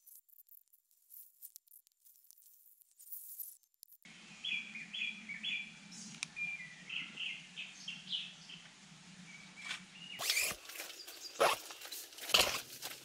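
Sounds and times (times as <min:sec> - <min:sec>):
birds chirping: 0:04.1 - 0:12.7
low steady hum: 0:04.1 - 0:13.0.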